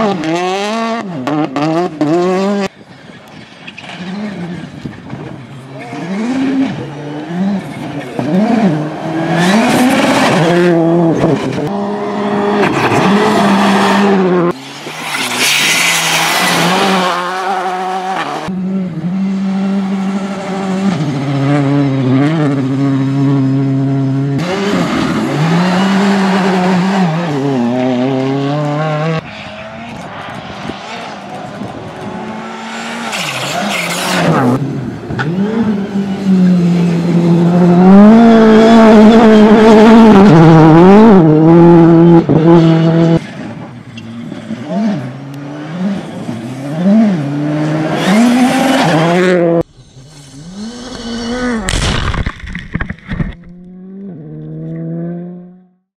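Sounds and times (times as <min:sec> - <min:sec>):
rally car engines revving: 0:00.0 - 0:55.8
tire noise: 0:00.0 - 0:55.8.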